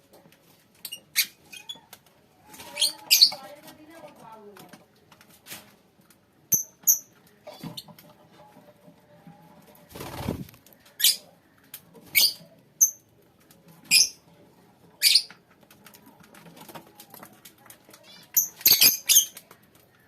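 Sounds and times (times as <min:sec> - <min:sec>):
faint flock chatter: 0:01.8 - 0:05.2, 0:07.2 - 0:18.4.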